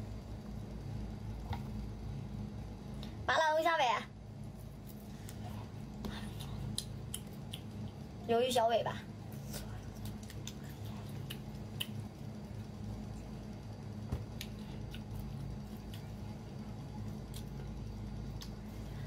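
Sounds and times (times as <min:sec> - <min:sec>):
steady low hum: 0:00.0 - 0:19.0
wet chewing clicks and squishes: 0:04.7 - 0:08.1, 0:09.4 - 0:12.3, 0:14.4 - 0:16.3, 0:17.0 - 0:18.6.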